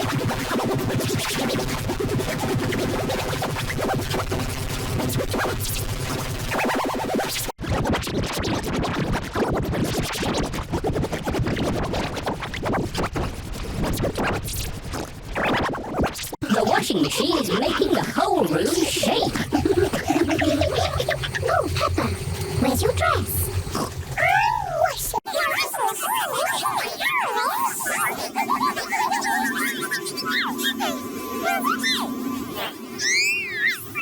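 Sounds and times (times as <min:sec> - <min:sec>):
record scratching: 0:15.0 - 0:25.5
distorted electronic music: 0:17.8 - 0:24.7.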